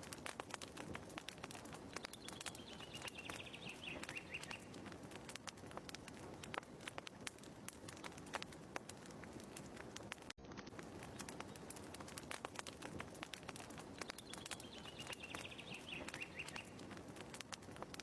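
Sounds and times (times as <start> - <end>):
fireplace crackling: 0.0 - 18.0
bird trill: 2.2 - 4.7, 14.2 - 16.8.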